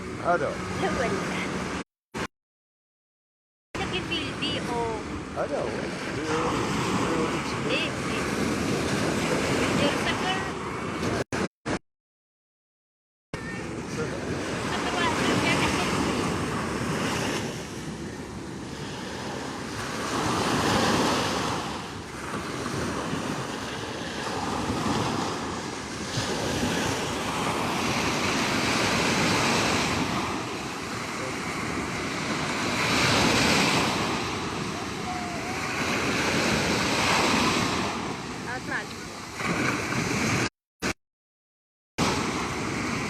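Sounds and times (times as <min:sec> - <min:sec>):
sea waves breaking: 0:00.0 - 0:02.3, 0:03.8 - 0:11.8, 0:13.4 - 0:41.0, 0:42.0 - 0:43.0.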